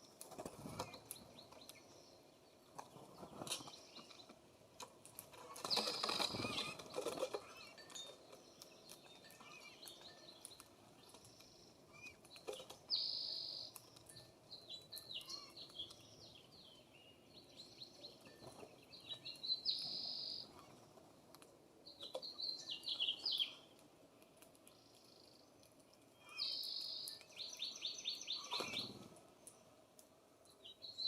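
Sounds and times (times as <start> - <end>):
birds chirping: 5.3 - 21.0, 21.8 - 23.8, 24.4 - 29.8.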